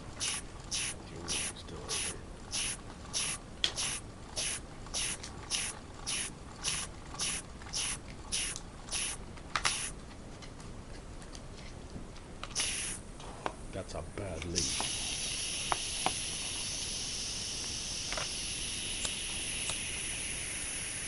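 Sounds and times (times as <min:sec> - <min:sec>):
steam leaking: 0:00.2 - 0:09.9, 0:12.6 - 0:13.0, 0:14.6 - 0:21.0.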